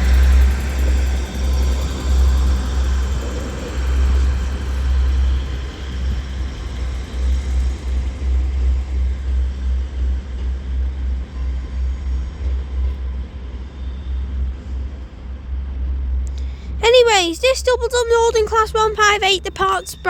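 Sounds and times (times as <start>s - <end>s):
train diesel engines rumbling: 0.0s - 20.0s.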